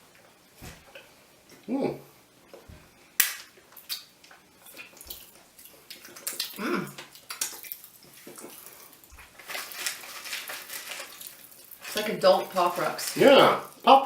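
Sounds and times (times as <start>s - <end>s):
person humming: 1.7s - 2.1s, 6.6s - 7.0s
popping candy crackling: 3.2s - 14.0s.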